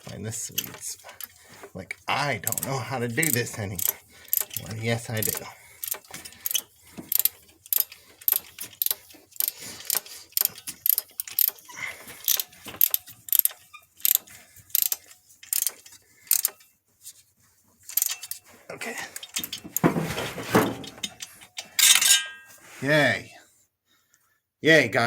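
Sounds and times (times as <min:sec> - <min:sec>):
socket ratchet clicking: 0:00.5 - 0:01.3, 0:02.5 - 0:16.6, 0:17.9 - 0:18.4.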